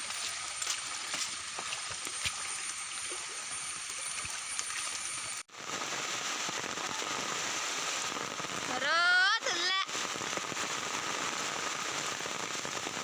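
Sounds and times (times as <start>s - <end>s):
heavy rain falling: 5.6s - 13.0s.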